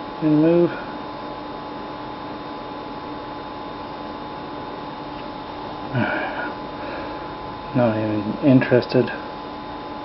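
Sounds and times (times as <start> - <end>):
electrical hum and hiss: 0.0 - 10.0.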